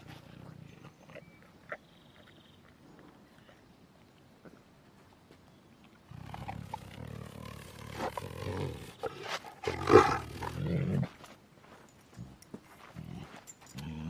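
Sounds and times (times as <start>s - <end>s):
tiger growling and roaring: 6.1s - 11.1s.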